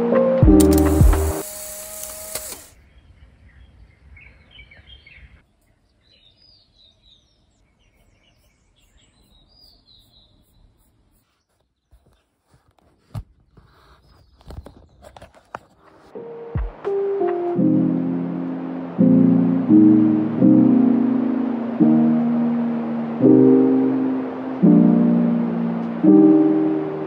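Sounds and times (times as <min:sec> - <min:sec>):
background music: 0:00.0 - 0:01.7, 0:16.1 - 0:27.0
faint bird chirps: 0:02.8 - 0:12.3.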